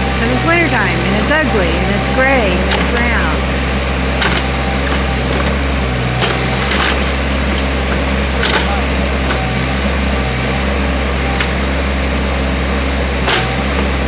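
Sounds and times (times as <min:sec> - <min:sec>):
diesel engine running under load: 0:00.0 - 0:14.0.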